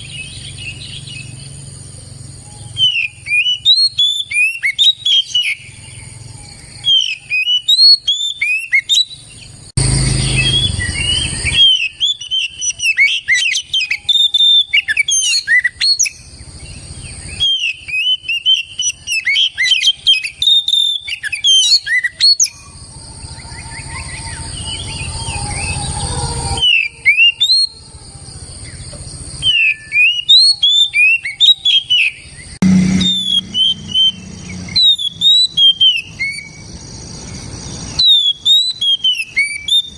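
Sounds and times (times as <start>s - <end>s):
bird singing whistled notes: 0.0s - 27.8s, 28.6s - 39.9s
harsh hissing: 32.6s - 35.3s.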